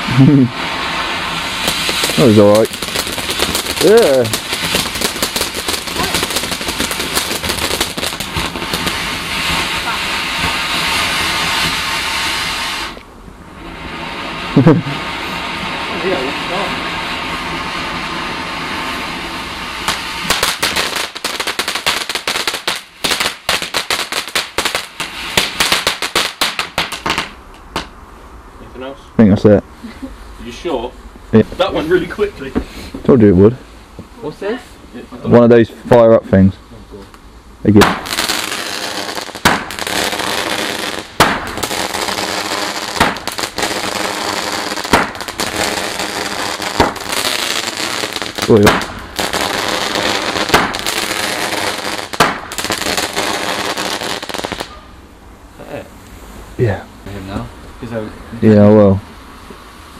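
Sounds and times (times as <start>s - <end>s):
firework crackling pops: 0.0s - 28.0s, 37.0s - 55.0s
firework hissing: 0.0s - 28.0s, 37.6s - 59.9s.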